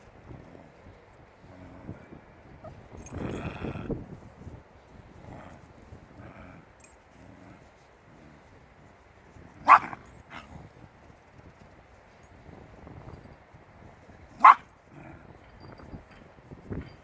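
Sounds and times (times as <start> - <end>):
faint soft sounds: 0.0 - 17.0
dog barking: 9.6 - 10.4, 14.4 - 14.7.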